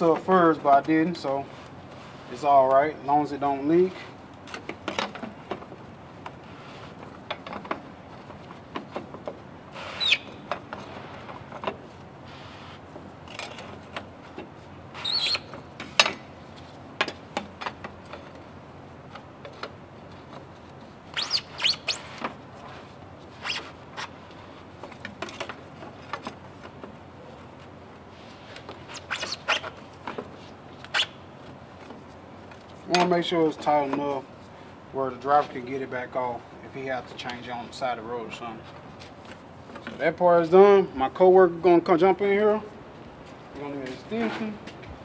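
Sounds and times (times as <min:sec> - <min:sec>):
cap squeaking as it turns: 0:09.8 - 0:10.5, 0:14.9 - 0:15.7, 0:21.1 - 0:22.4, 0:23.3 - 0:24.2, 0:28.8 - 0:29.9, 0:30.8 - 0:31.3.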